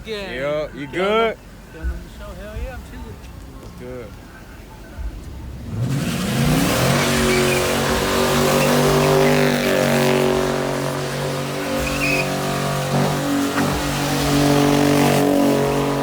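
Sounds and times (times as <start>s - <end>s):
car engine revving: 1.4s - 16.0s
tyres squealing: 5.6s - 16.0s.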